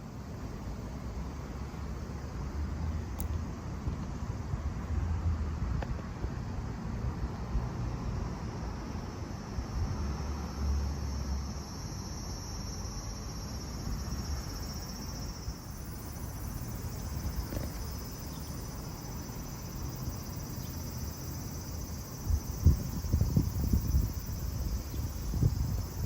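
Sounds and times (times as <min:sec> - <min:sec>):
wind rumble on microphone: 0:02.8 - 0:08.2, 0:19.8 - 0:26.0
insects chirring: 0:06.6 - 0:26.0.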